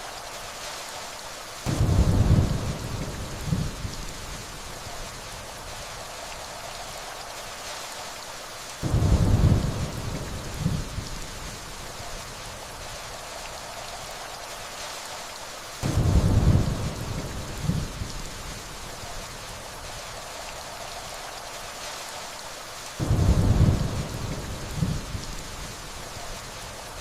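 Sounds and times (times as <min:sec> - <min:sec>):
rainfall hissing: 0:00.0 - 0:27.0
distant thunder rolling: 0:01.7 - 0:04.0, 0:08.8 - 0:11.2, 0:15.8 - 0:18.1, 0:23.0 - 0:25.8.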